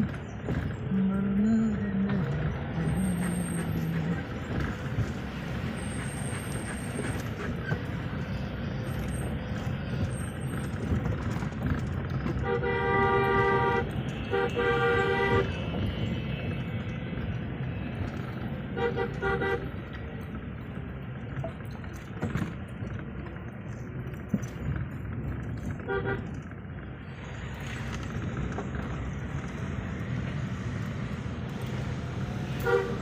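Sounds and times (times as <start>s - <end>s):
road traffic noise: 0.0s - 33.0s
vehicle horn blasts: 12.4s - 15.7s, 18.8s - 19.7s, 25.9s - 26.3s, 32.6s - 33.0s.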